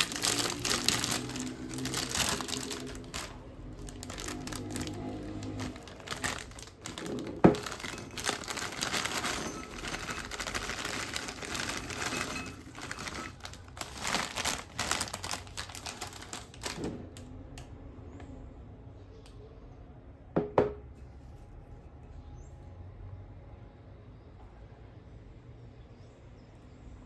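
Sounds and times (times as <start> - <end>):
plastic snack bag crinkling: 0.0 - 17.2.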